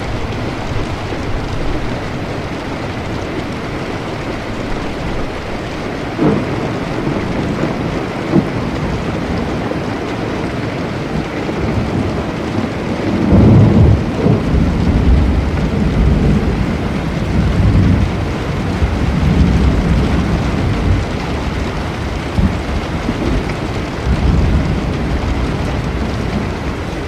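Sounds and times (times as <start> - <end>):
low roll of thunder: 0.0 - 27.0
steady rain falling: 0.0 - 27.0
sharp thunder cracks: 6.2 - 9.0.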